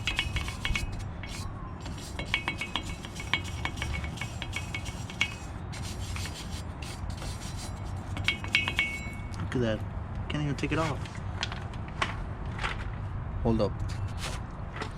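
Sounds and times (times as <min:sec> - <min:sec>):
brush scrubbing metal: 0:00.0 - 0:09.3.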